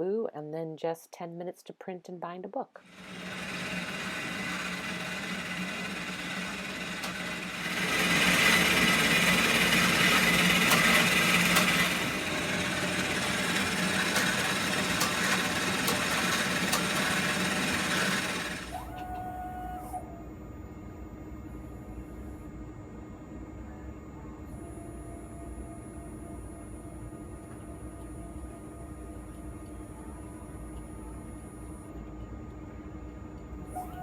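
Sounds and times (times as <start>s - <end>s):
machine mechanical whir: 2.8s - 20.1s, 23.8s - 34.0s
machine clicks: 5.6s - 18.7s.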